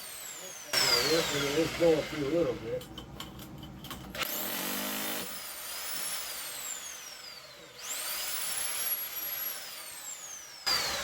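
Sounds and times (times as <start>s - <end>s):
concrete saw motor whining: 0.0s - 3.0s, 4.0s - 11.0s.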